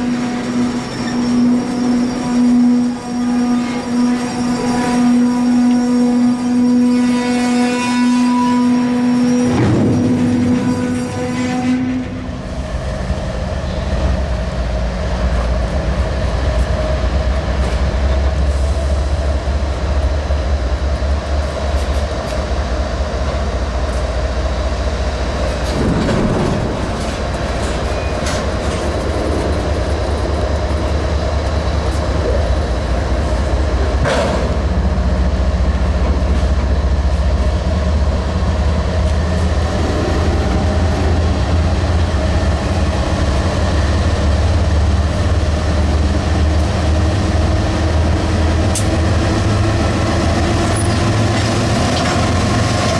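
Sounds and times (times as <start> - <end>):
freight train rumble: 0.0 - 52.9
wheels clicking over rail joints: 21.4 - 35.0.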